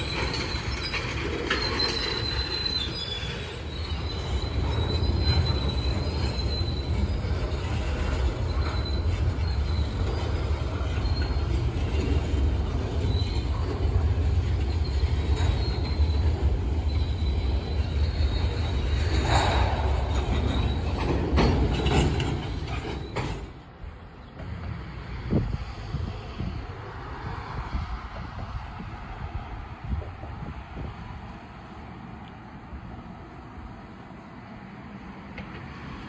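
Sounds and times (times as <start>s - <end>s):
high wheel squeal: 0.0s - 24.1s
train cars rumbling: 0.0s - 36.0s.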